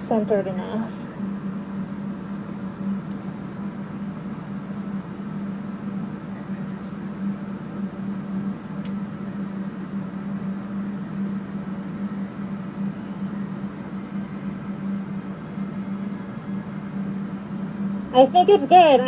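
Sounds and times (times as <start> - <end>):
electric fans humming: 0.0 - 19.0
faint click: 8.8 - 9.0.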